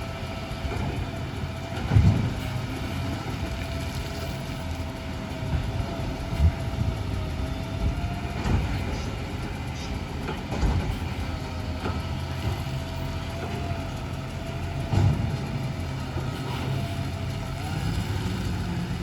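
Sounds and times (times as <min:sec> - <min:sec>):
garbage truck engine running: 0:00.0 - 0:19.0
clunks and knocks: 0:00.6 - 0:03.8, 0:07.8 - 0:17.4.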